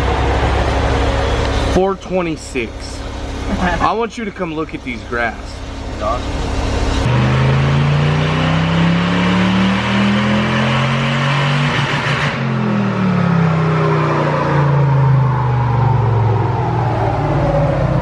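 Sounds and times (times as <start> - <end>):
engine revving at full throttle: 6.0 - 18.0.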